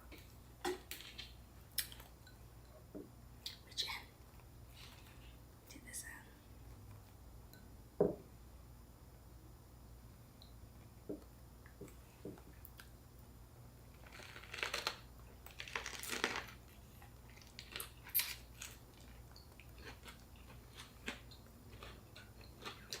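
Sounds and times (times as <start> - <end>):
crunching spring roll: 14.0 - 16.6.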